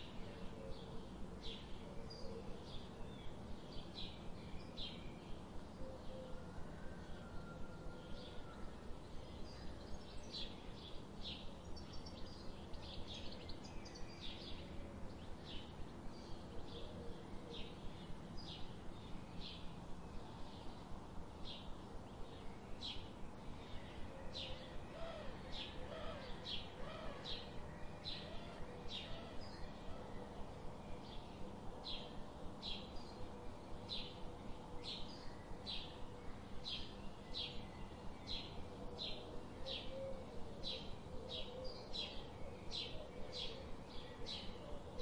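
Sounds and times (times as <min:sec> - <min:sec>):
low background hiss: 0:00.0 - 0:45.0.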